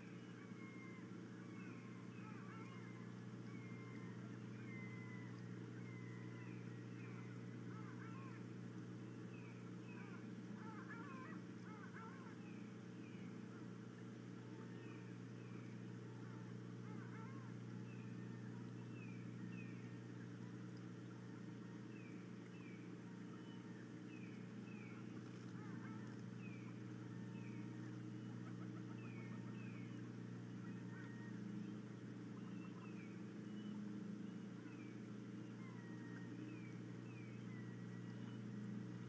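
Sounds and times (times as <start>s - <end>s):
bird chirping: 0.0s - 8.4s, 22.0s - 38.8s
steady low hum: 0.0s - 39.0s.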